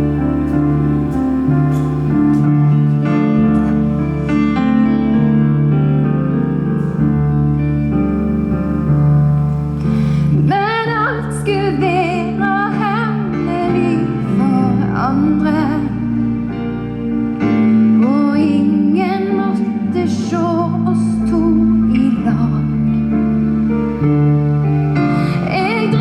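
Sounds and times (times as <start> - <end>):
keyboard playing slow chords: 0.0 - 26.0
woman singing with vibrato: 10.4 - 16.0.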